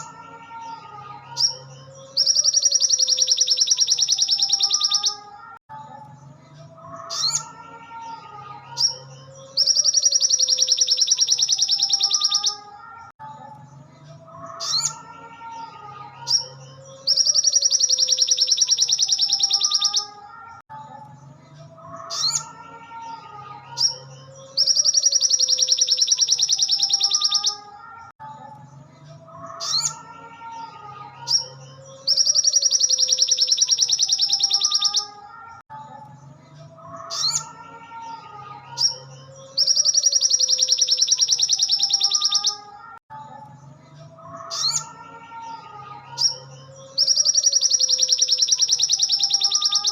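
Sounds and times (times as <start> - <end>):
bird chirps and warbles: 0.0 - 49.9
bird trilling: 1.4 - 5.3, 8.8 - 12.7, 16.3 - 20.2, 23.8 - 27.8, 31.3 - 35.2, 39.6 - 42.9, 46.2 - 49.9.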